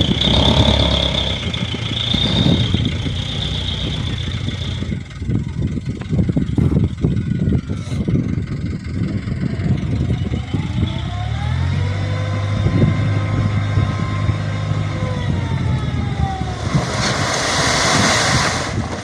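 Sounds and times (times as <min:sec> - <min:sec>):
diesel engine revving with whine: 0:00.0 - 0:19.0.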